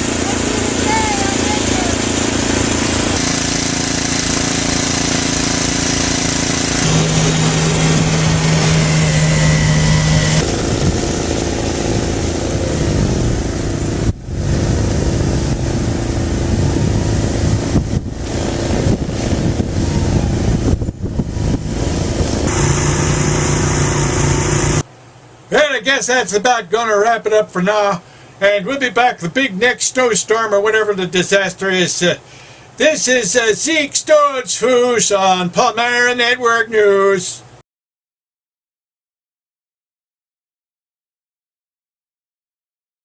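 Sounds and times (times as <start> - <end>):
snowblower engine running: 0.0 - 24.9.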